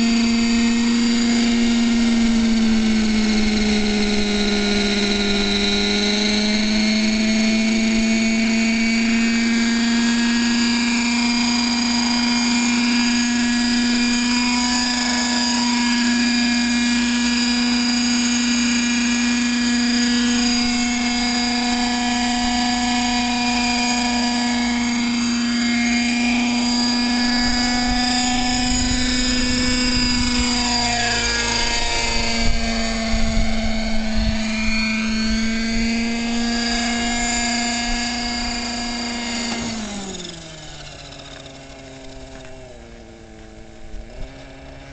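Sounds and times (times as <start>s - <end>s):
model helicopter rotor whine: 0.0s - 44.9s
low gusty rumble: 26.4s - 38.9s.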